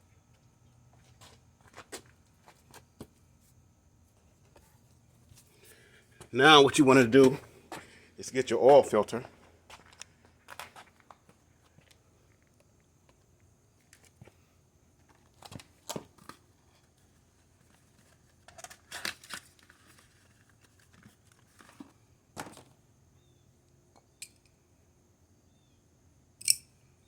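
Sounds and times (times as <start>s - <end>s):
oil filter packaging handling: 15.2s - 22.5s.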